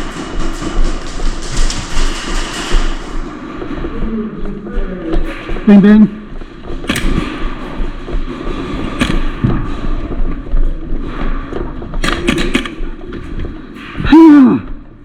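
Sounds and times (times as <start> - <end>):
rustle and clatter of play: 0.0 - 14.0
airsoft gun shots: 6.8 - 7.6, 8.9 - 9.4, 12.0 - 12.8.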